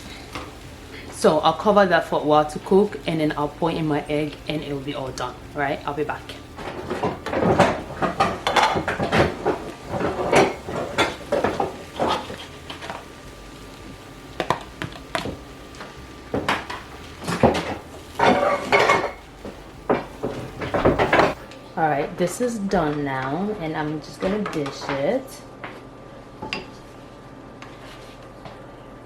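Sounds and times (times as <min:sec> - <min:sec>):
dishes and utensils clattering: 0:06.6 - 0:13.0, 0:16.3 - 0:19.2, 0:19.9 - 0:21.4.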